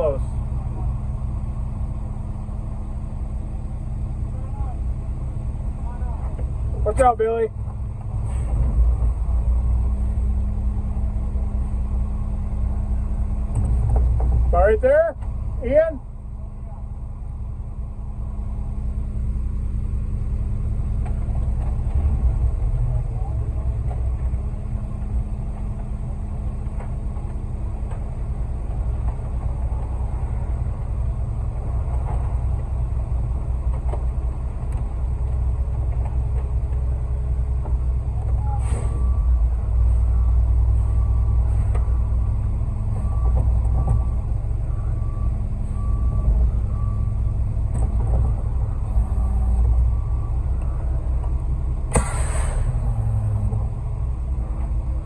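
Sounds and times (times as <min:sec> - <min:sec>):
diesel engine rumbling: 0:00.0 - 0:55.0
hiss of air: 0:51.9 - 0:52.8.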